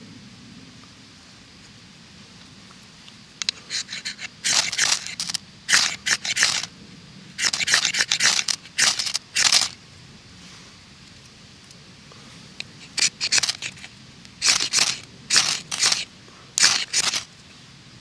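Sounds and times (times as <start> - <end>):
grainy scraping strokes: 3.7 - 6.7, 7.4 - 9.8, 12.8 - 17.3.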